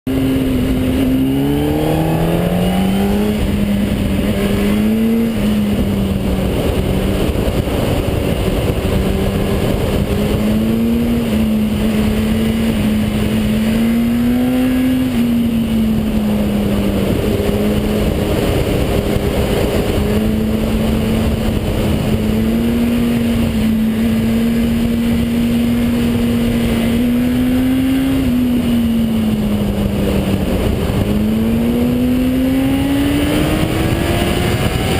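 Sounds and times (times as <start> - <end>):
car engine accelerating: 0.1 - 34.9
road noise: 0.1 - 34.9.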